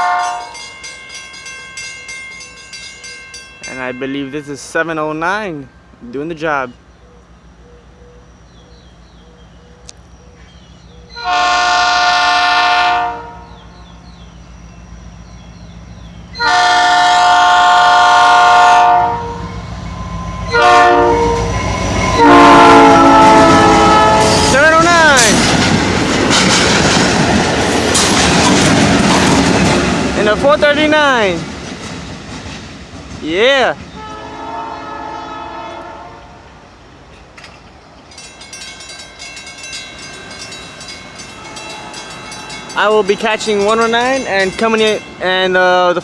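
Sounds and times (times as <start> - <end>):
locomotive air horn blasts: 0.0 - 0.6, 11.2 - 13.6, 16.4 - 19.6, 20.4 - 24.6, 34.0 - 36.4
locomotive engine running: 19.4 - 33.2
train wheels clattering: 19.6 - 34.4, 37.1 - 46.0.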